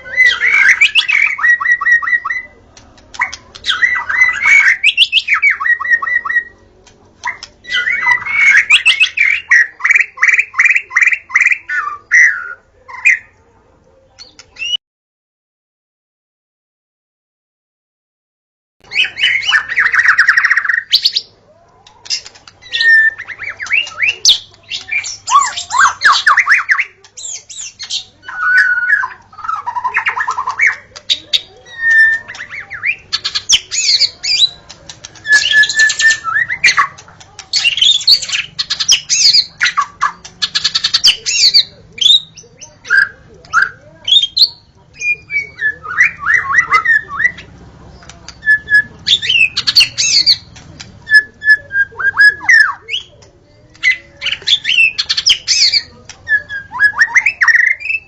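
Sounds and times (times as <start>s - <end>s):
songbird singing varied song: 22.1s - 58.0s.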